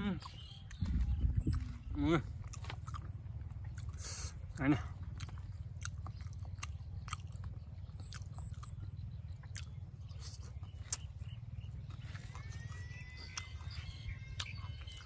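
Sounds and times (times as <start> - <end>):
man chewing: 0.0 - 15.0
wet mouth clicks: 9.4 - 11.1.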